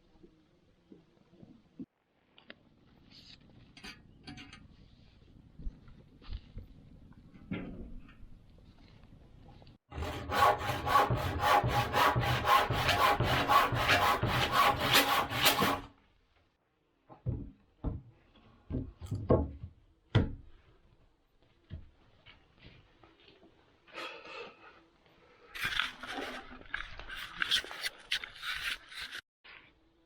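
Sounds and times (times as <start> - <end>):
hand saw cutting wood: 9.9 - 15.9.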